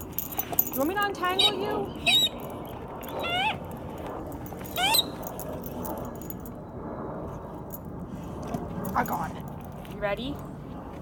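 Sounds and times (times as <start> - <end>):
dog whining: 1.3 - 3.8, 4.6 - 5.4.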